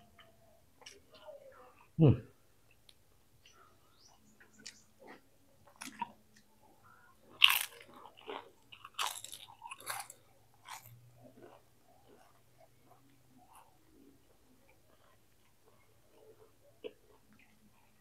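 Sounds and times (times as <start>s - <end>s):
chewing: 0.0s - 2.0s, 2.6s - 18.0s
crunchy bites: 4.6s - 6.5s, 7.2s - 12.4s.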